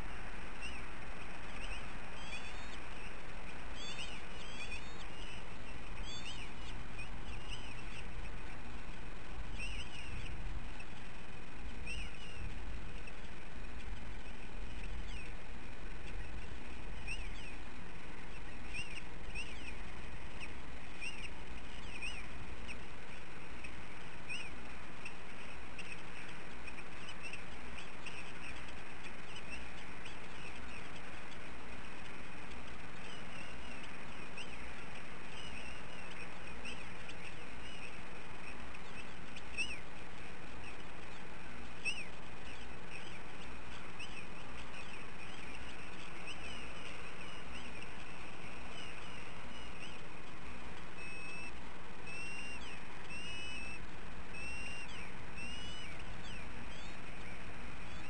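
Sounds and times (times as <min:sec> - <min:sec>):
steady background hiss: 0:00.0 - 0:58.0
high-pitched bird chirps: 0:00.6 - 0:15.4, 0:32.8 - 0:58.0.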